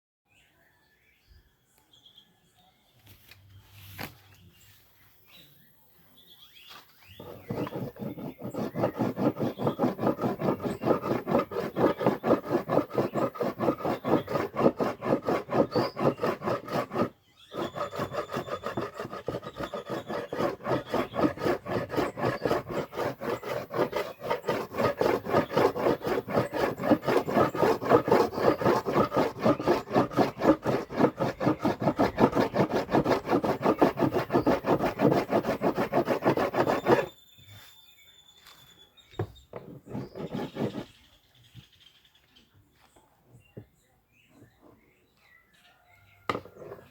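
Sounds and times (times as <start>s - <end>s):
hand tool strokes on wood: 7.2s - 37.1s, 39.9s - 40.9s.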